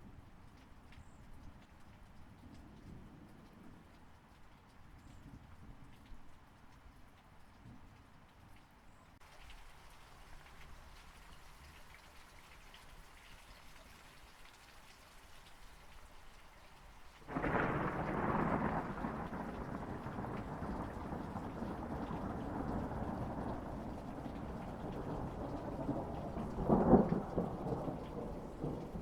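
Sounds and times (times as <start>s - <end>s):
steady rain: 0.0s - 29.0s
thunderclap and rumble: 17.3s - 29.0s.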